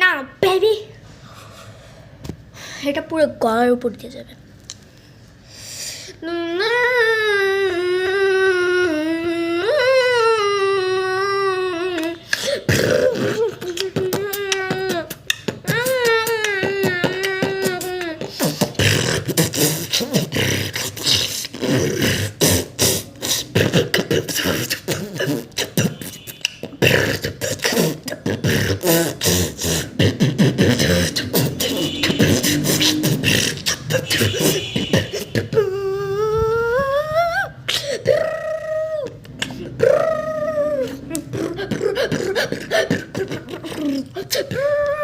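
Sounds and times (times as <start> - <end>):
person beatboxing: 10.0 - 45.0
rising vocal glide: 26.7 - 45.0.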